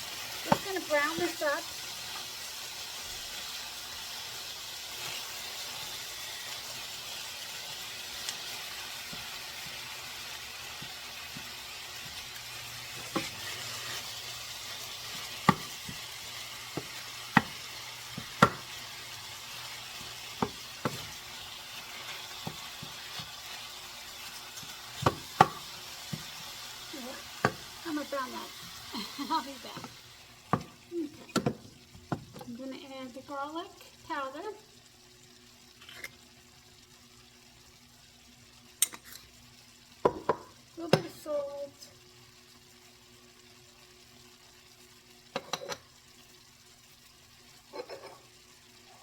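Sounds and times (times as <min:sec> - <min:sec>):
meat sizzling in a pan: 0:00.0 - 0:49.0
utensil clacking against pan: 0:16.7 - 0:18.8.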